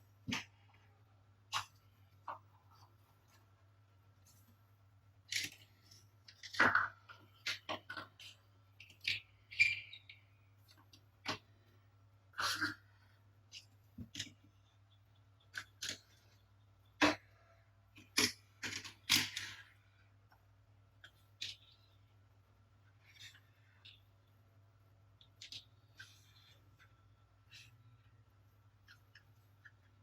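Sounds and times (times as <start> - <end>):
plastic toys clicking: 17.9 - 19.7.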